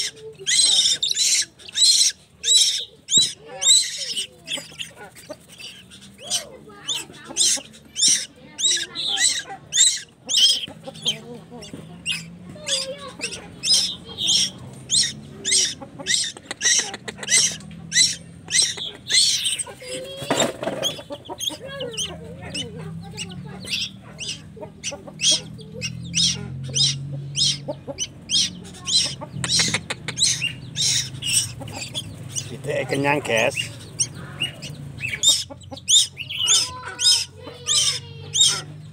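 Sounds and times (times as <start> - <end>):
chick begging calls: 0.0 - 38.9.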